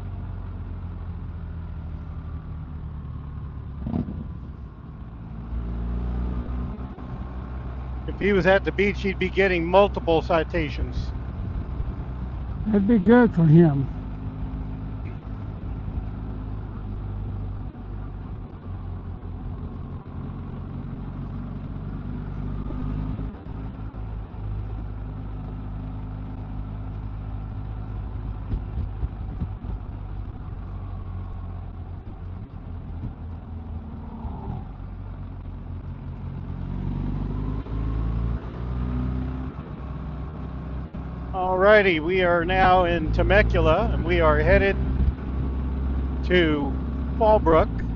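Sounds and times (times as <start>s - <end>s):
wind and road noise: 0.0s - 47.9s
motorcycle engine running: 11.0s - 36.4s.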